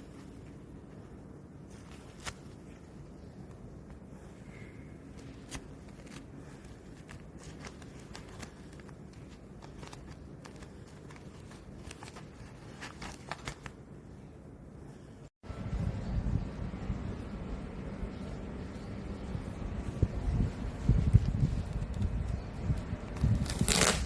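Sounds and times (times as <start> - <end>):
patch crinkling: 0.0 - 14.2, 20.8 - 24.0
low background hum: 0.0 - 24.0.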